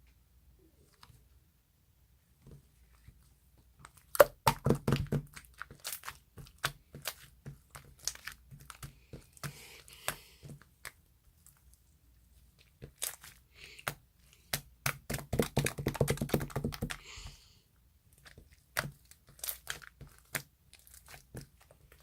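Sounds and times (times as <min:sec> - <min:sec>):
sharp cracks and crinkles: 0:03.8 - 0:11.8, 0:18.1 - 0:22.0.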